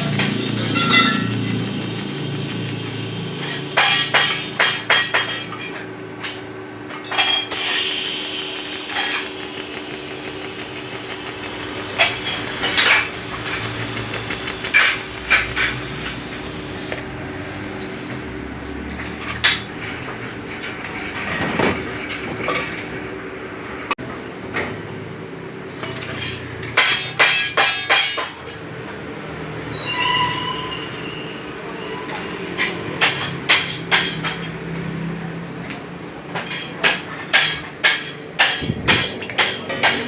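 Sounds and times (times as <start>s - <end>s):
sharp metallic taps: 0.0s - 5.6s, 8.5s - 16.3s
welding machine hum: 0.0s - 17.5s.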